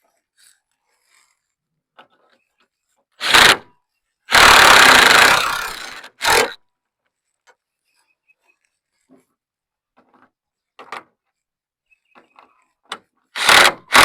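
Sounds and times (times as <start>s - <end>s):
impact wrench bursts: 3.2s - 3.6s, 4.3s - 6.6s, 13.4s - 14.0s.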